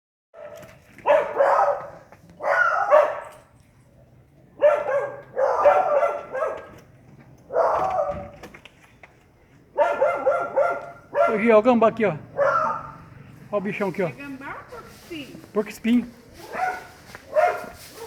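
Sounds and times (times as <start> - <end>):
dogs barking furiously: 0.4 - 3.5, 4.6 - 8.4, 9.7 - 13.2, 16.4 - 18.0.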